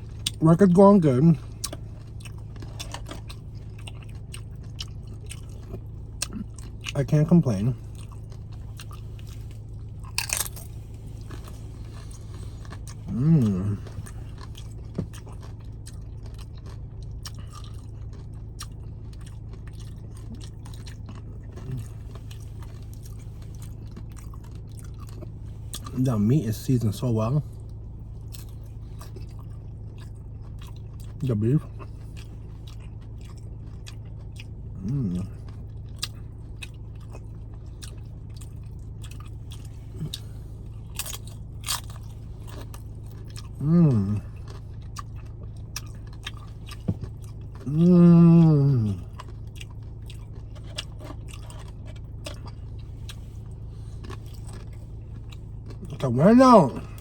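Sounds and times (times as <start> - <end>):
crunching tortilla chips: 0.0 - 57.0
low background hum: 0.0 - 57.0
person humming low: 13.0 - 14.0, 34.8 - 35.3, 43.6 - 44.4, 47.6 - 49.1.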